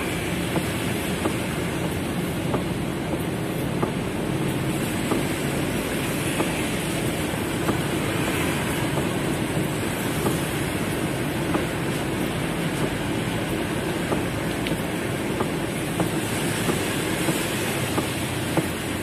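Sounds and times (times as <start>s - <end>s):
heavy rain on car roof: 0.0s - 19.0s.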